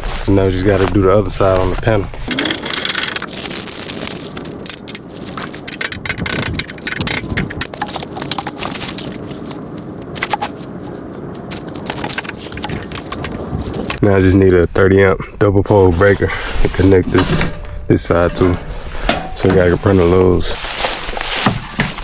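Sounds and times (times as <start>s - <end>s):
crunching and scraping: 0.0s - 14.1s, 15.7s - 22.0s
steady noise: 2.3s - 14.0s
sharp clicks: 4.4s - 14.0s.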